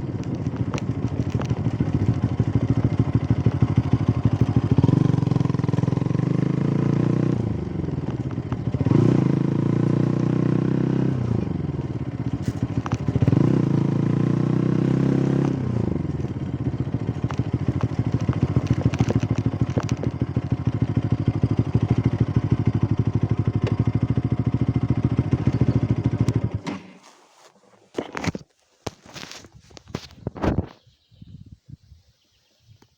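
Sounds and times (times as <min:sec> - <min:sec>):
engine revving: 0:00.6 - 0:26.6.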